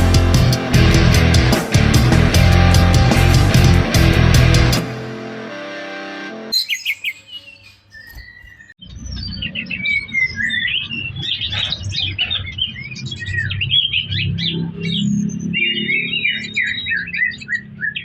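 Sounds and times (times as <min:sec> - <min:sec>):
rock music intro: 0:00.0 - 0:06.5
songbird chirping and trilling: 0:06.5 - 0:18.0.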